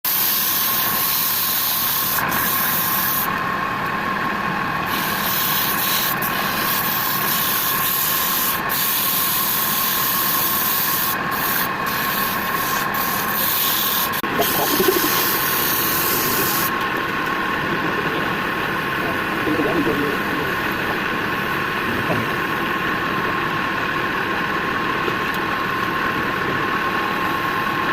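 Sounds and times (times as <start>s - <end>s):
abrasive hiss on spinning wood: 0.1s - 3.3s, 4.8s - 16.8s
wood lathe whine: 0.1s - 19.5s.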